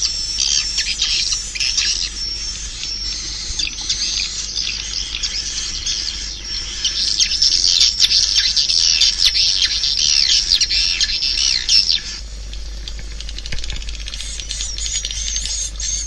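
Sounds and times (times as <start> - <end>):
swiftlets twittering: 0.0 - 16.0.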